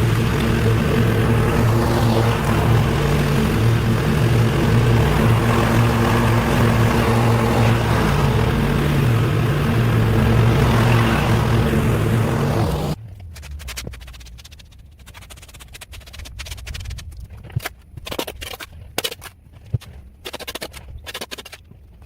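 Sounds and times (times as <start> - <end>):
small gasoline engine running: 0.0 - 15.1.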